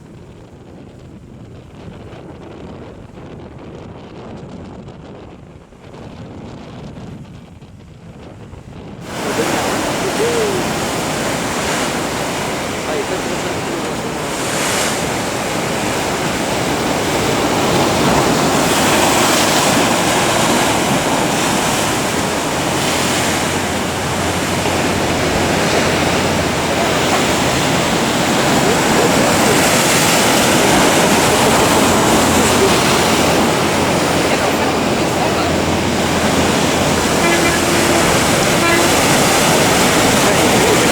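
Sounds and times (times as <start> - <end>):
ocean surf breaking: 9.0 - 40.9.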